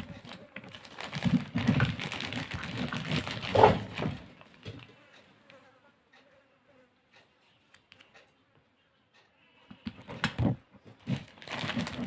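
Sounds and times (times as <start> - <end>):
plastic packaging crackling: 0.0 - 4.9, 11.0 - 12.0.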